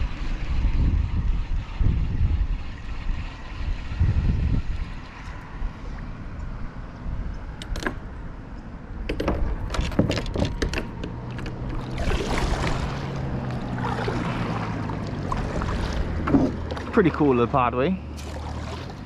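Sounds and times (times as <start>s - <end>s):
low wind rumble: 0.0s - 19.0s
paddle knocks and clicks: 7.6s - 8.1s, 9.1s - 17.2s
water splashing: 9.4s - 19.0s.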